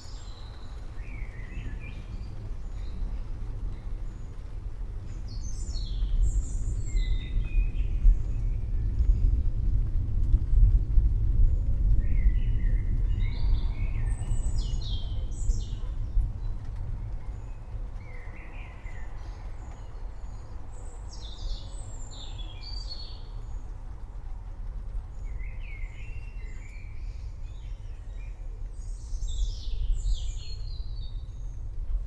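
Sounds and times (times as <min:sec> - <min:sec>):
steady low rumble: 0:06.1 - 0:18.1.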